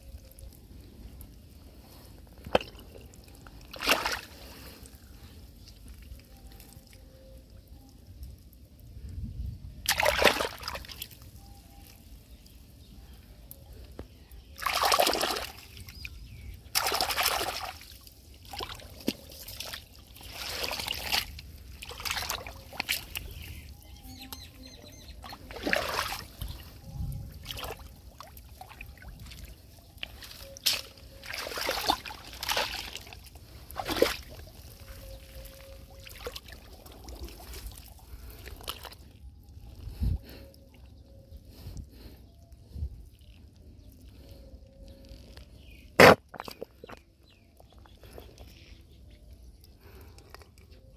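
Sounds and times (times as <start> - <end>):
hands splashing in muddy water: 2.4 - 4.4, 9.8 - 11.2, 14.6 - 15.8, 16.7 - 23.5, 25.2 - 26.8, 27.4 - 39.0.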